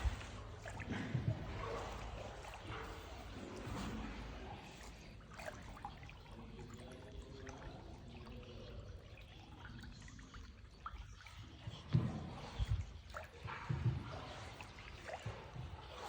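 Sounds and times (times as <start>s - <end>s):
small splashes: 0.0s - 16.0s
water trickling and dripping: 0.0s - 16.0s.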